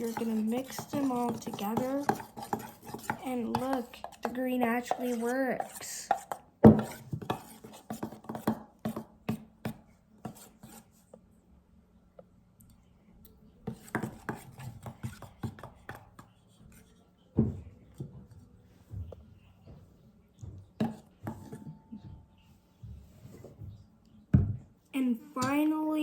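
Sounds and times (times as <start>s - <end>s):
metal spoon stirring thick glue: 0.0s - 11.0s, 13.6s - 18.4s, 20.4s - 21.8s.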